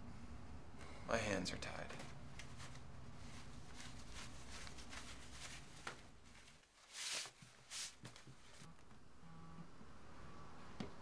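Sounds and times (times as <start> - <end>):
fabric rustling: 2.4 - 8.7
tie swishing: 2.5 - 8.1.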